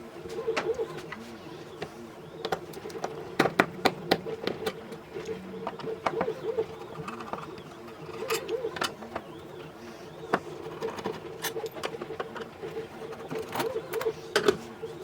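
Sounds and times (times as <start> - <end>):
low cooing call: 3.7 - 11.0, 13.2 - 14.3.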